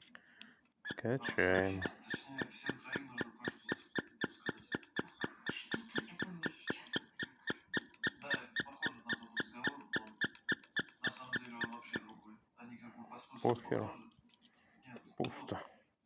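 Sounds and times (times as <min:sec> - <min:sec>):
primer bulb squeaky clicks: 0:00.8 - 0:12.0.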